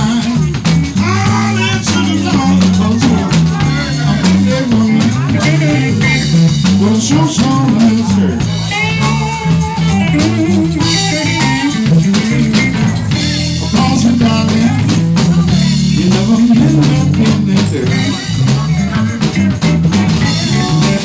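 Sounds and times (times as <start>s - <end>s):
bass: 0.0s - 21.0s
drum kit: 0.0s - 21.0s
electric guitar lines: 0.0s - 21.0s.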